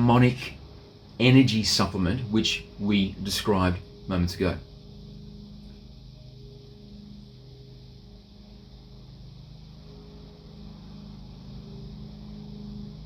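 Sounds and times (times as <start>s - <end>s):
held low tones: 0.0s - 13.0s
low droning hum: 0.0s - 13.0s.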